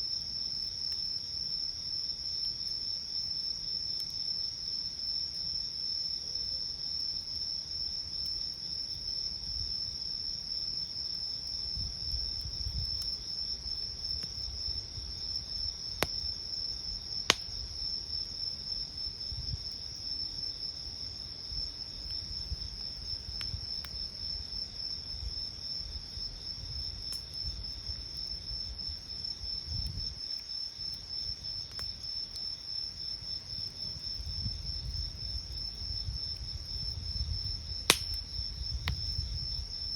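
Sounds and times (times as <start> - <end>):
crickets trilling: 0.1 - 39.9
campfire rumble: 7.1 - 39.9
burning wood popping: 37.8 - 39.2.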